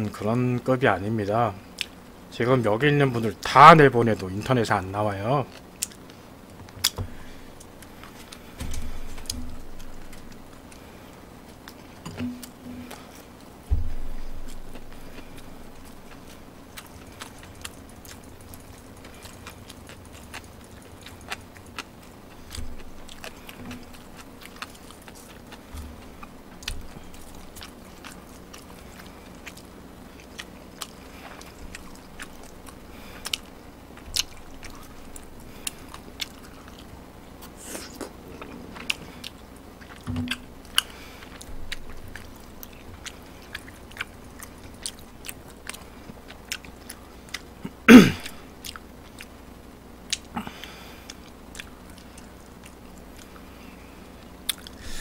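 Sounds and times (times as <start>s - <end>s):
person chewing: 1.7s - 2.0s, 5.5s - 49.4s, 50.1s - 55.0s
soft low thumps: 8.5s - 10.5s, 12.1s - 13.0s, 13.6s - 15.1s.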